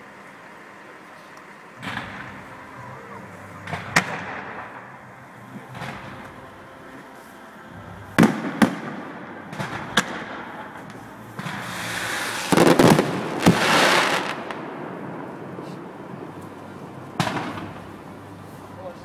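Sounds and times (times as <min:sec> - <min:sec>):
crackling hiss of fireworks: 0:00.0 - 0:19.0
loud firework bangs: 0:01.8 - 0:06.7, 0:07.8 - 0:16.4, 0:17.1 - 0:18.1
firework shell bursts: 0:08.2 - 0:14.7.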